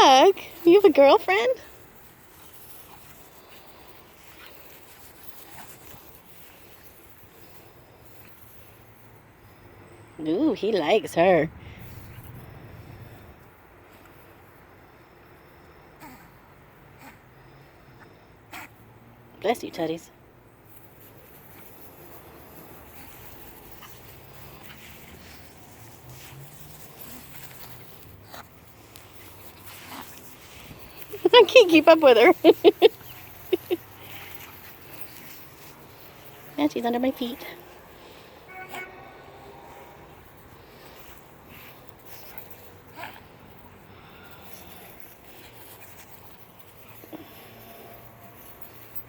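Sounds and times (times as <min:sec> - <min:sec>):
dogs playing: 0:00.0 - 0:09.9, 0:20.6 - 0:49.0.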